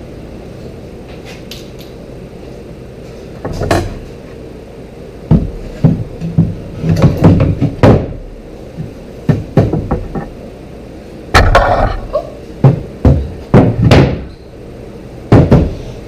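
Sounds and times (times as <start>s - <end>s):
wooden knocks and thuds: 5.3s - 8.2s, 8.8s - 10.3s, 12.6s - 14.3s, 15.3s - 15.8s.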